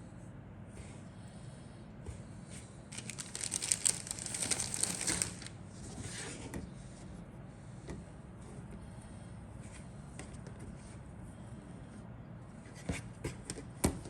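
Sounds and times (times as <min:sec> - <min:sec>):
faint rustle: 0:02.9 - 0:05.6
plastic packaging crinkling: 0:02.9 - 0:05.7.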